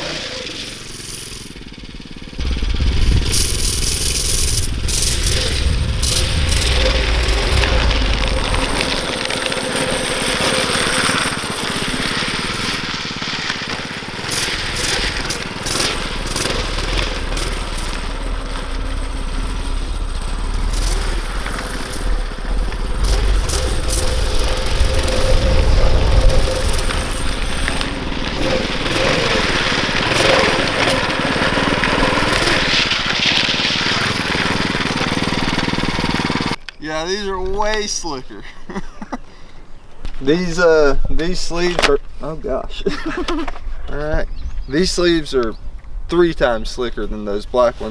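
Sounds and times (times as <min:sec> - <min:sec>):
small engine revving: 0:00.0 - 0:36.8
wind rumble on microphone: 0:01.8 - 0:12.7, 0:14.8 - 0:32.8, 0:43.4 - 0:47.9.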